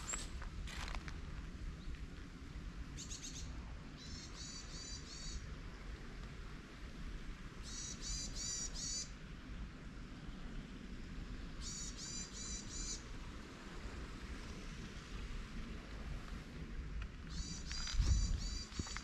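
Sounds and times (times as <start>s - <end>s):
songbird singing: 3.0s - 5.4s, 7.6s - 9.1s, 11.6s - 13.1s, 17.2s - 19.0s.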